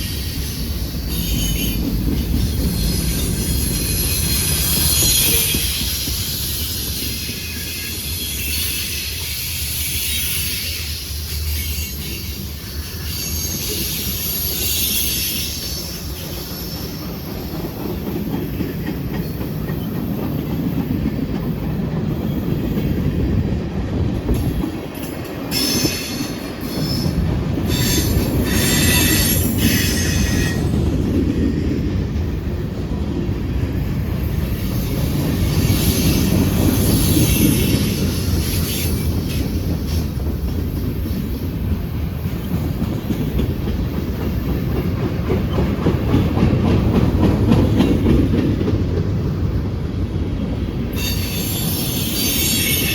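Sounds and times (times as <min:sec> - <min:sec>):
freight train wheels clattering: 0:00.0 - 0:52.9
high-pitched wheel squeal: 0:50.9 - 0:52.9.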